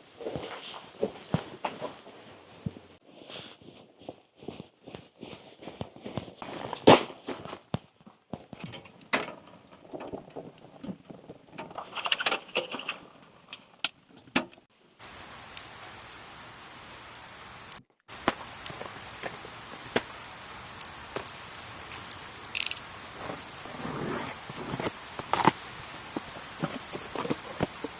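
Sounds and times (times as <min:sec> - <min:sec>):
rain drops pattering: 0:08.2 - 0:27.9.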